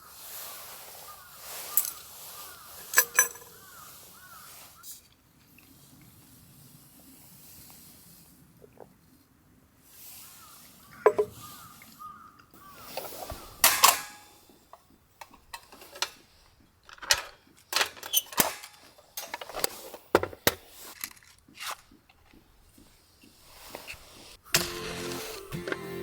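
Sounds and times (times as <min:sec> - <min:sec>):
hard objects clicking and knocking: 0:11.1 - 0:11.4
background music: 0:24.5 - 0:26.0.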